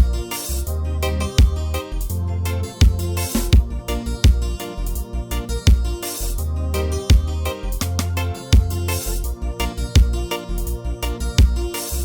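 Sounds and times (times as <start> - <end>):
kick drum: 0.0 - 0.2, 1.4 - 1.6, 2.8 - 4.6, 5.7 - 6.0, 7.1 - 7.4, 8.6 - 8.8, 10.0 - 10.3, 11.4 - 11.7
deep bass line: 0.0 - 12.0
keyboard or guitar notes: 0.0 - 12.0.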